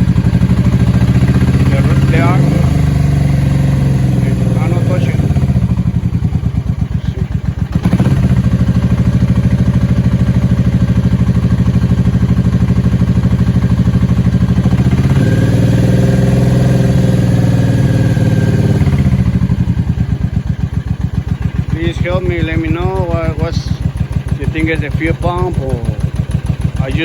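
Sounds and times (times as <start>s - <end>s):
motorcycle engine idling: 0.0s - 27.0s.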